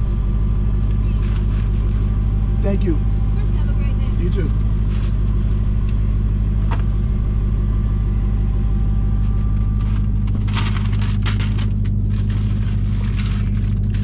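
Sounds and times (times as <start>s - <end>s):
car engine idling: 0.0s - 14.0s
rustling and crackling: 0.8s - 2.3s, 3.4s - 7.0s, 9.2s - 14.0s.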